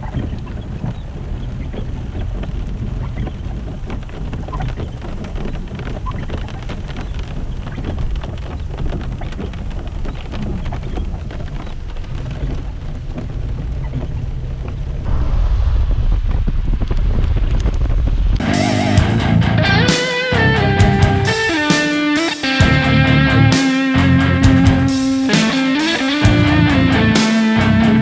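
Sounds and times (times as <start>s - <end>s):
wind rumble on microphone: 0.0s - 19.6s
heavy rain patter: 0.0s - 28.0s
loud deep sound: 15.0s - 19.9s.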